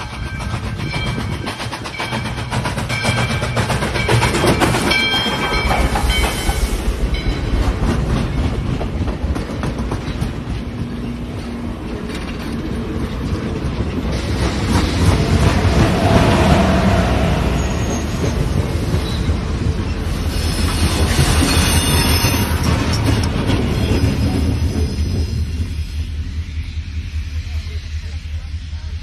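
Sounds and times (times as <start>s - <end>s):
train wheels clattering: 0.0s - 29.0s
bell clanging: 0.2s - 7.6s.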